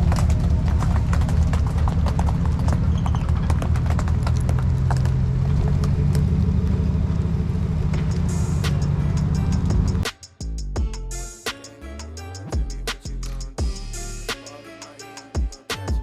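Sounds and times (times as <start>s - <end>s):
vehicle engine running: 0.0s - 10.1s.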